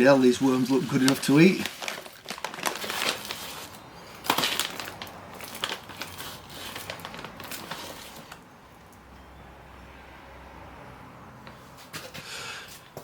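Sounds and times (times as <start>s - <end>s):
packet rustling and crackling: 0.0s - 8.4s.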